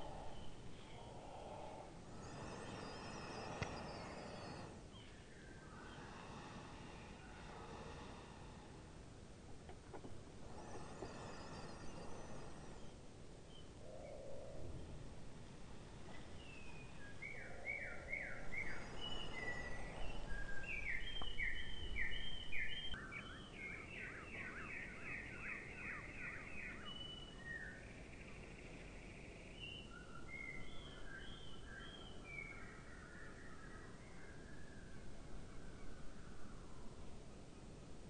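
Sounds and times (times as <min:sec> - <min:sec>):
low steady background rumble: 0:00.0 - 0:25.4
songbirds chirping: 0:00.0 - 0:38.0.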